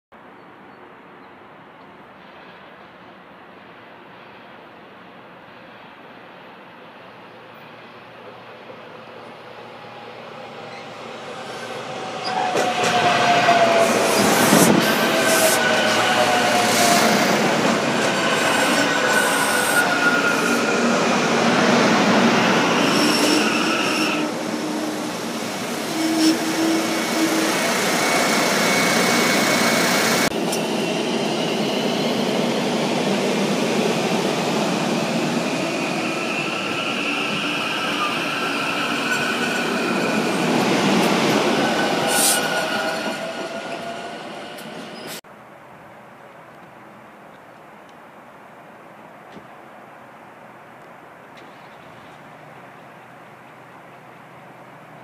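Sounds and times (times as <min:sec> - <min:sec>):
train wheels rumbling and rattling: 0:10.5 - 0:45.2.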